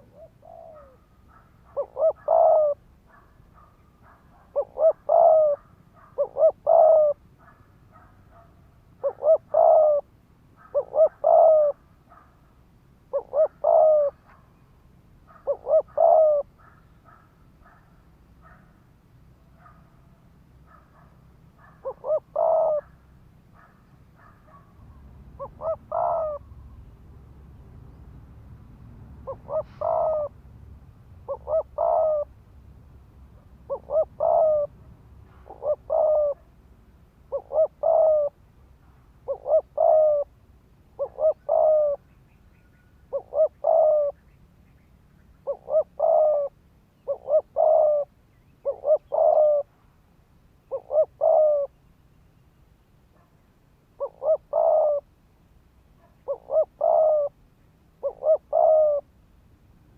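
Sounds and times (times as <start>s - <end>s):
dove cooing: 0.0s - 12.3s, 13.0s - 14.6s, 15.3s - 18.8s, 19.5s - 26.7s, 29.2s - 30.4s, 31.2s - 32.4s, 33.4s - 36.5s, 37.2s - 38.4s, 39.2s - 44.3s, 45.4s - 49.8s, 50.6s - 51.8s, 54.0s - 55.1s, 56.0s - 57.4s, 58.0s - 59.1s.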